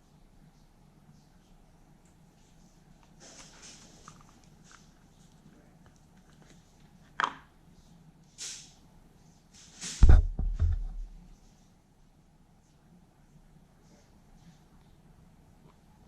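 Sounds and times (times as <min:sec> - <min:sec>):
heavy thump and metal clatter: 0:09.9 - 0:11.2.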